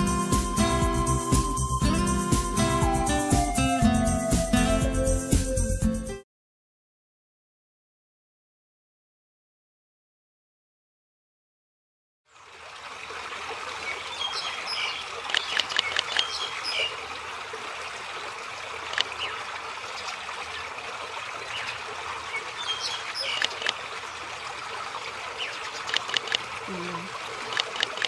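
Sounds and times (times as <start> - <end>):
stream water trickling: 12.3 - 28.0.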